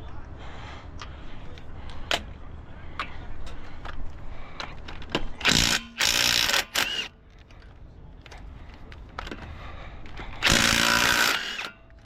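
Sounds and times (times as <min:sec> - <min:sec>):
impact wrench bursts: 0:05.4 - 0:07.2, 0:10.3 - 0:12.0.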